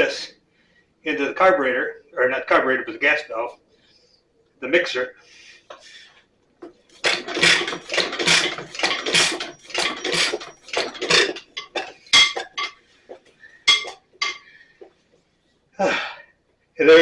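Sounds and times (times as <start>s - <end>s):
metal tools clinking together: 7.0s - 12.8s, 13.7s - 14.4s.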